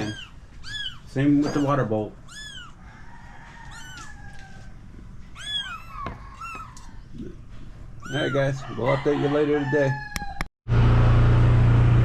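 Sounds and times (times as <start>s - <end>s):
kittens meowing: 0.0s - 10.4s.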